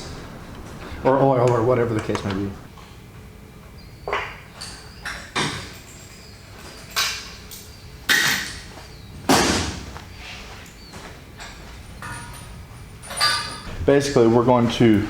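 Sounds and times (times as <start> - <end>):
ringing tool clanks: 11.4 - 13.8.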